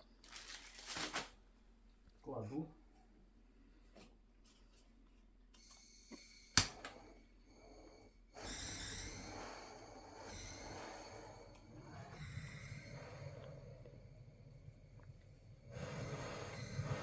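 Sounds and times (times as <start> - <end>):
lighter flame hissing: 8.4 - 17.0.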